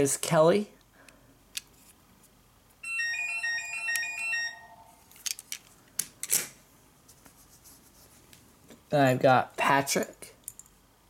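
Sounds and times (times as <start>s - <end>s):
electronic telephone ringtone: 2.8s - 5.0s.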